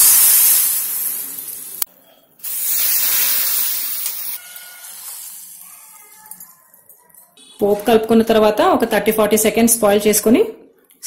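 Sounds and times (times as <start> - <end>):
hot oil sizzling in soup: 0.0 - 6.3.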